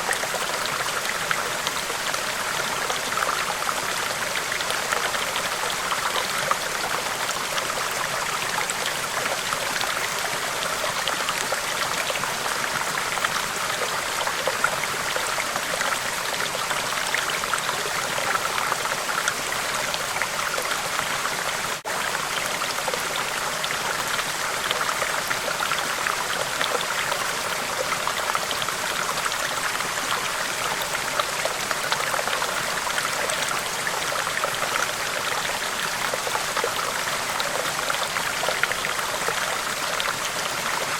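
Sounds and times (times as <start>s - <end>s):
river water flowing over rocks: 0.0s - 40.9s.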